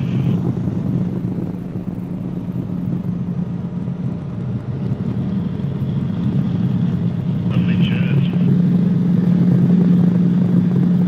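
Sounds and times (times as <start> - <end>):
helicopter engine and rotors droning: 0.0 - 11.0.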